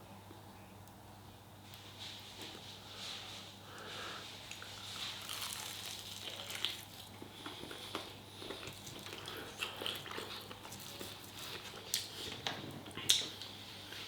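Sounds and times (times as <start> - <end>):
person chewing food: 4.4 - 14.0.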